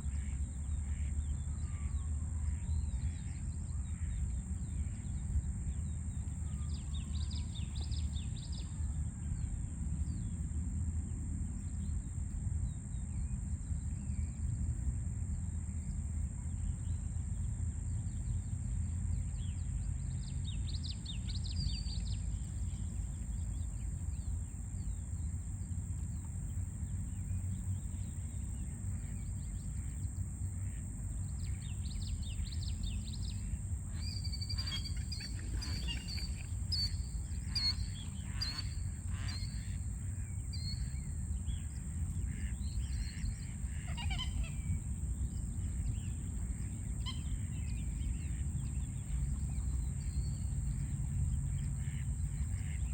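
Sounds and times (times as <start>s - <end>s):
small bird chirping: 31.9s - 39.7s.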